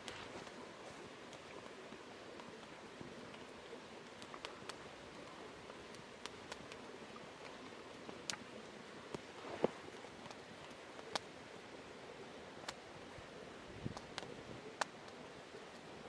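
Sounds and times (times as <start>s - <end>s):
wood campfire crackling: 0.0s - 16.0s.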